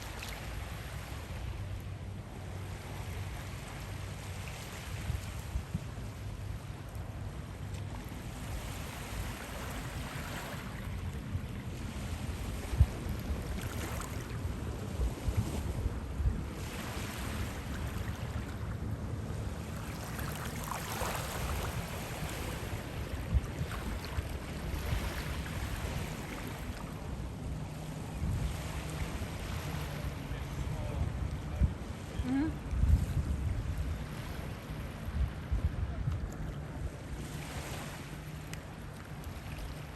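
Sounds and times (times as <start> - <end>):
surf washing on beach: 0.0 - 39.9
wind buffeting microphone: 8.1 - 39.9.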